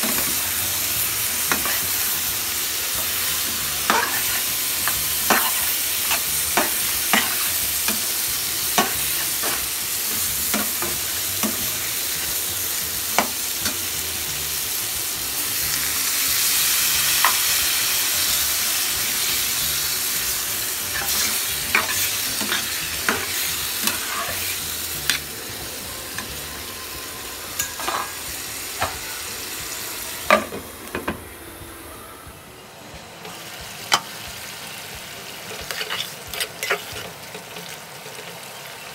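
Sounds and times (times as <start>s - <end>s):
vegetables sizzling in a pan: 0.0s - 32.3s, 33.0s - 38.9s
metal spatula scraping a pan: 20.9s - 25.3s, 35.6s - 37.5s.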